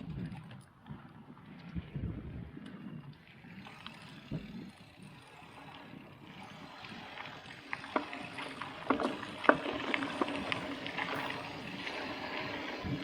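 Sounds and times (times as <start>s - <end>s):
tyre and wind noise: 0.0s - 13.0s
bike knocks and clatters: 7.7s - 13.0s.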